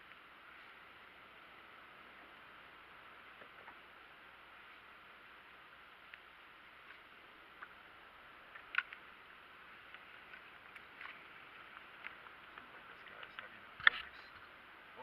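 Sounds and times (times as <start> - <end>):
faint steady hiss: 0.0 - 15.0
light clicks and ticks: 8.5 - 9.1.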